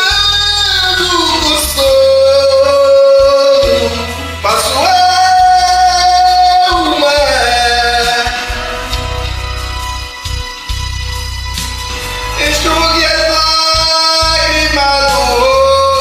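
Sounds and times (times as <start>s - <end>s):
karaoke backing track: 0.0s - 16.0s
person singing gospel song: 0.0s - 16.0s.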